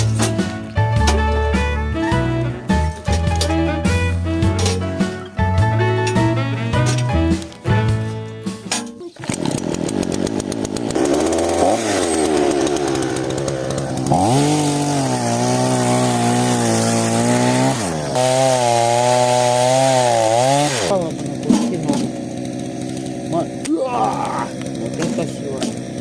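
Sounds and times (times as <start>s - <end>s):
two-stroke engine revving: 9.2s - 26.0s.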